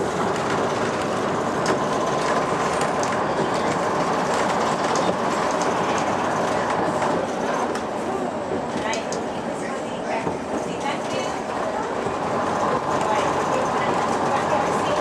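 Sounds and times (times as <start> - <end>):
train wheels rumbling on rails: 0.0 - 15.0
sharp track clicks: 0.3 - 7.9.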